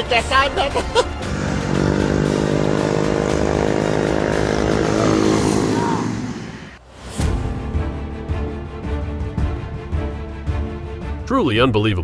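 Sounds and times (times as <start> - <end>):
vehicle engine droning: 0.8 - 6.8.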